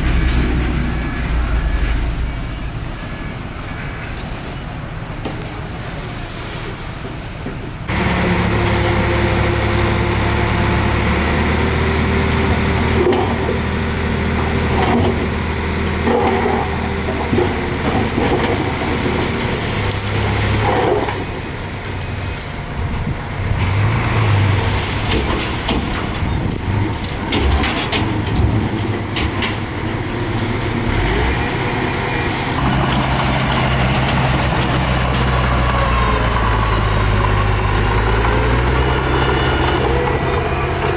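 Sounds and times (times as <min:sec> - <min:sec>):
metallic knocks and clanks: 0:00.0 - 0:05.4
heavy diesel engine working: 0:00.0 - 0:40.9.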